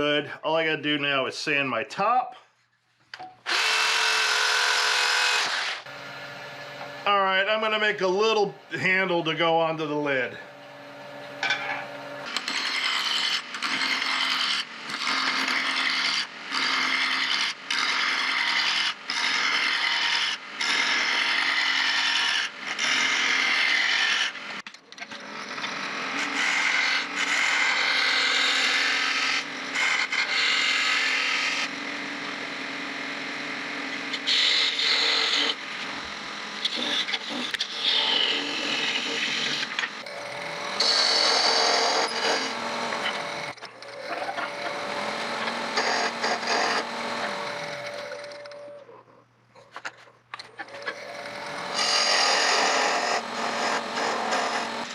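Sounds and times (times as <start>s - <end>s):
lathe tool scraping wood: 11.8s - 48.5s, 50.4s - 54.9s.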